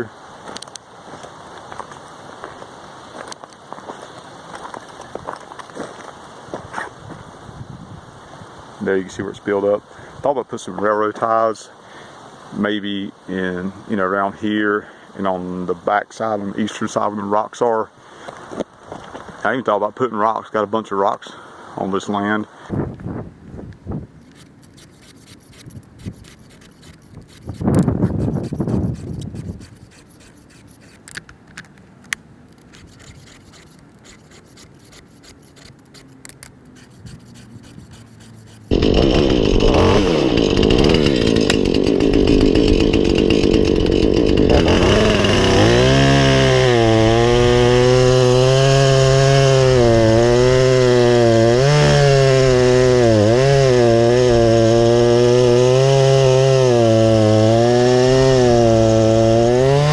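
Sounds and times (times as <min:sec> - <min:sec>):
chainsaw cutting wood: 0:24.2 - 0:31.3, 0:32.6 - 0:59.9.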